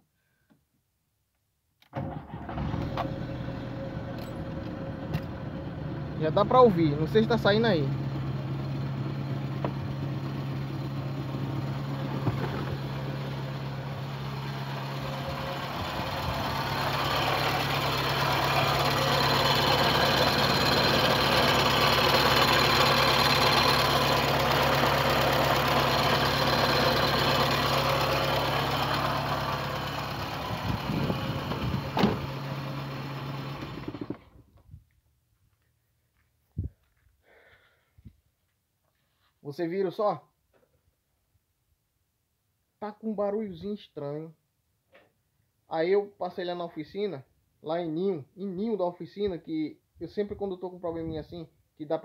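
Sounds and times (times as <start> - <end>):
car engine idling with whirring: 2.1 - 34.4.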